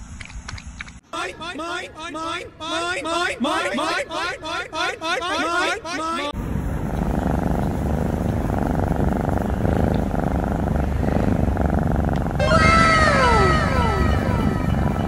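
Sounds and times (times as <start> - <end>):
cat purring: 6.8 - 15.0
falling tones: 12.4 - 15.0.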